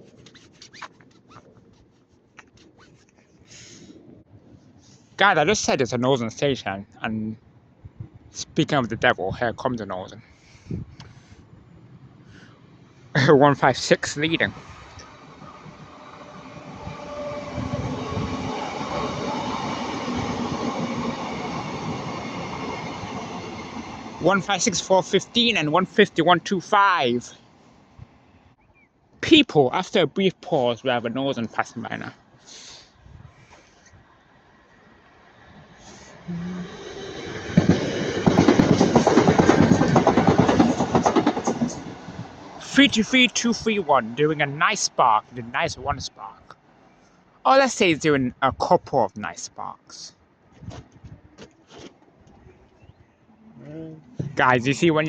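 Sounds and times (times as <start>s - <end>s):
diesel train engine drone: 4.0s - 28.2s, 34.2s - 46.4s
wheel and rail noise: 10.2s - 26.0s, 33.4s - 45.0s
wheels clattering over rail joints: 37.4s - 42.1s.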